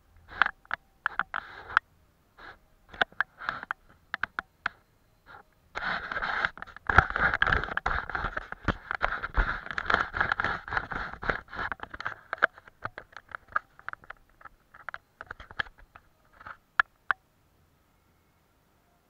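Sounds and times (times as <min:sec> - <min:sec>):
painting tool scratching paper: 0:00.3 - 0:01.8, 0:02.4 - 0:03.8, 0:05.3 - 0:12.8
tool tapping paper: 0:05.8 - 0:15.8.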